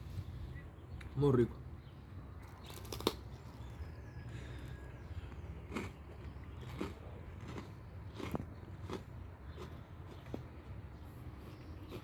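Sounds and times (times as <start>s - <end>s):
person chewing food: 4.6s - 12.0s.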